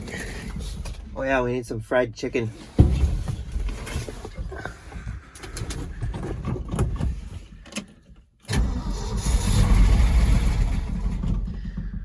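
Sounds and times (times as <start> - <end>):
engine cranked by starter: 8.4 - 12.0.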